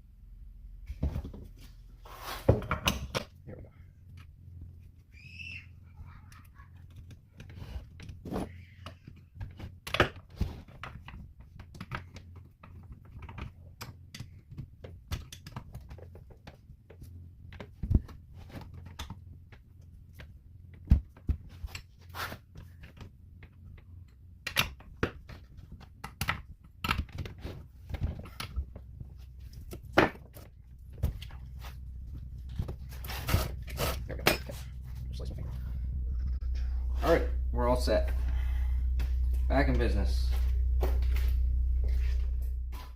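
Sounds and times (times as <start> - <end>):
low hum: 27.6 - 42.9
tools and metal parts clanking: 32.9 - 35.4.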